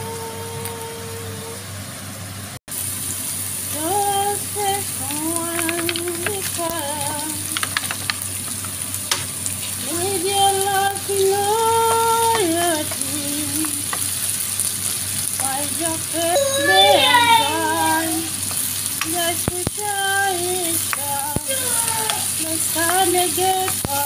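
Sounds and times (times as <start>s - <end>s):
sung melody: 0.0s - 1.6s, 15.5s - 18.4s
food sizzling in a frying pan: 2.7s - 24.0s
wooden spoon clicking on pan: 5.4s - 9.3s, 20.7s - 24.0s.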